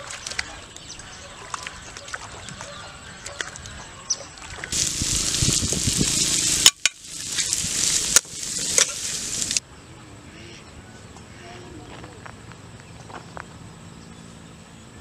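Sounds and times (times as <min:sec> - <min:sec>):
quiet outdoor ambience: 0:00.0 - 0:15.0
fish frying in a wok: 0:04.7 - 0:09.6.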